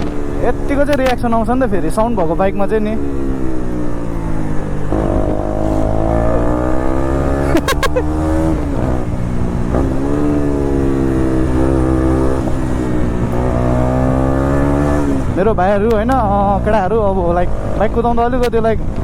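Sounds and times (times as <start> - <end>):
motorcycle engine loud exhaust: 0.0 - 19.0
wind rumble on microphone: 8.4 - 19.0.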